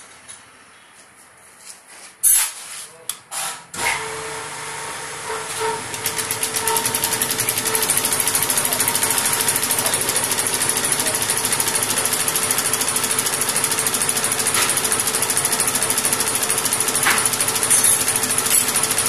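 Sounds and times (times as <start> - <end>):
machine humming and clattering: 3.7 - 19.0.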